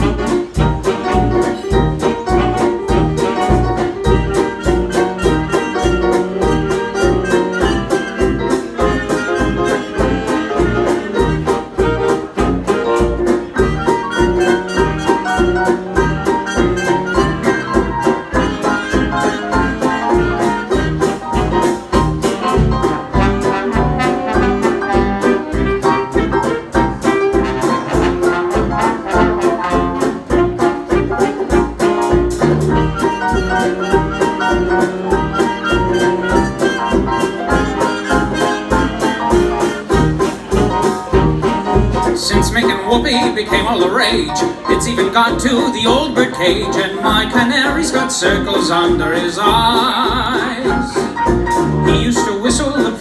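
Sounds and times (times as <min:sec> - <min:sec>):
brass playing jazz: 0:00.0 - 0:53.0
steady bass beat: 0:14.8 - 0:34.1, 0:34.7 - 0:50.6, 0:51.3 - 0:52.8.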